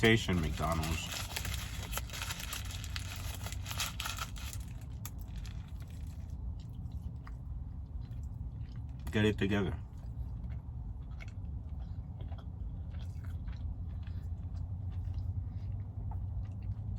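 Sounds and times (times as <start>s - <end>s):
chewing and biting burger: 0.0s - 16.9s.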